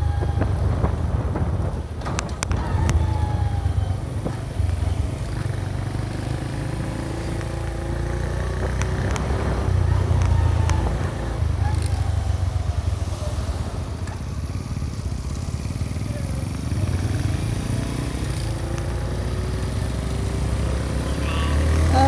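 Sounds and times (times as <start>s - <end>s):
heavy low rumble: 0.0s - 6.1s.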